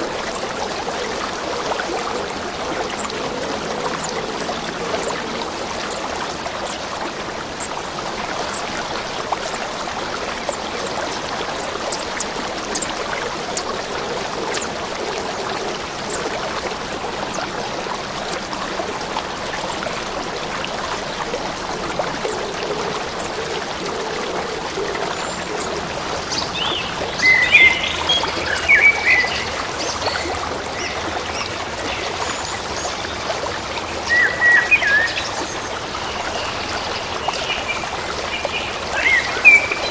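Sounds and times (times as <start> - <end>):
stream babbling: 0.0 - 39.9
birds chirping: 22.2 - 33.2.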